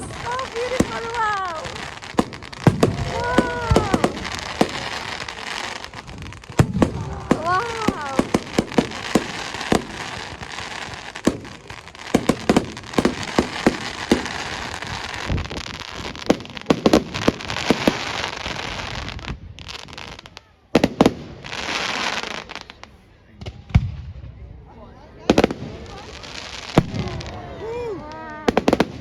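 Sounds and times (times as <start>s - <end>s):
fireworks hiss: 0.0s - 23.0s
fireworks bangs and pops: 0.0s - 24.5s, 25.2s - 29.0s.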